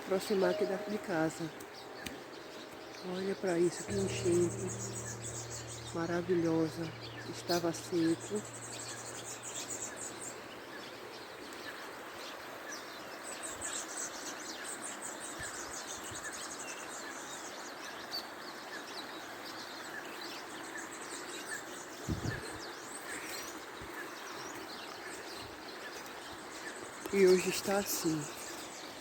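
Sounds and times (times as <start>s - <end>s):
birds chirping: 0.0s - 11.8s, 21.8s - 29.0s.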